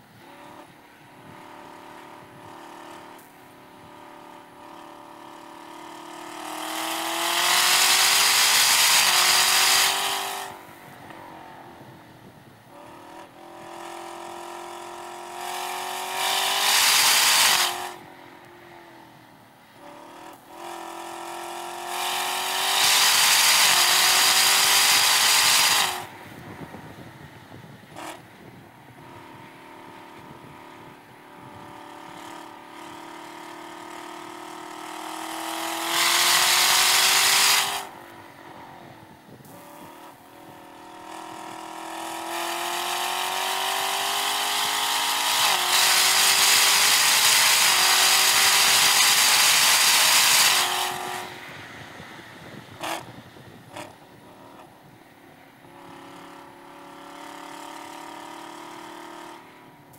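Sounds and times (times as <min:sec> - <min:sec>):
car engine accelerating: 0:00.1 - 0:55.0.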